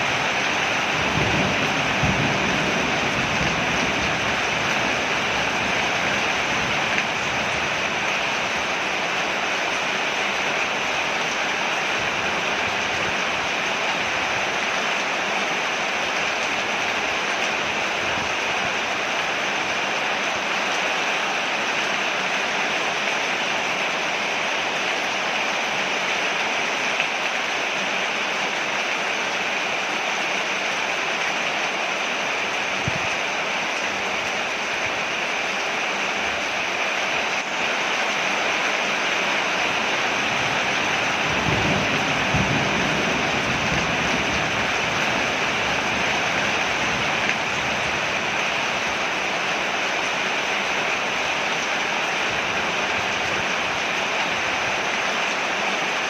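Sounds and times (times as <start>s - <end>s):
heavy rain on a porch: 0.0s - 56.0s
low rumble of thunder: 0.2s - 6.8s, 40.7s - 46.2s.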